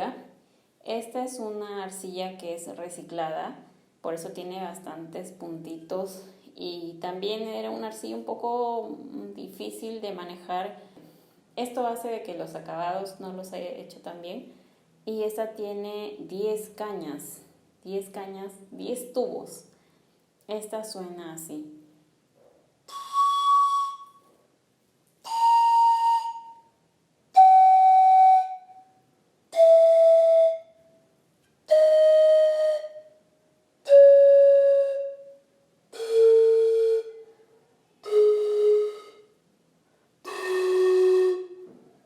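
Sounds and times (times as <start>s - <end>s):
panpipe breathy notes: 22.9s - 24.3s, 29.5s - 31.1s, 31.7s - 33.2s, 33.8s - 39.4s, 40.2s - 41.7s.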